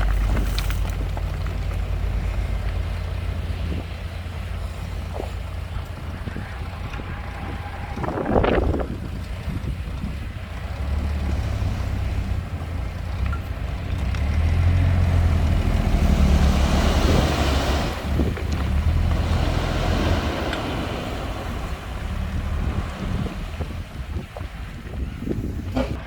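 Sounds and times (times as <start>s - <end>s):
rushing noise: 0.0s - 12.8s
heavy diesel engine rumbling: 0.0s - 26.0s.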